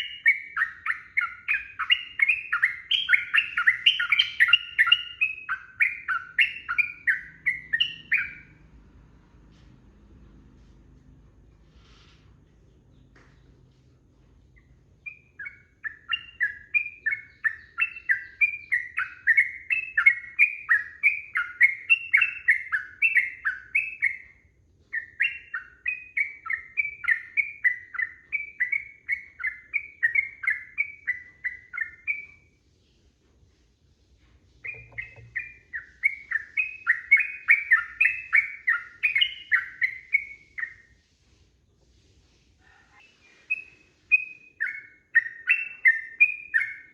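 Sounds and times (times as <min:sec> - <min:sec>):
bird chirping in fast runs: 0:00.0 - 0:08.6, 0:34.6 - 0:40.9.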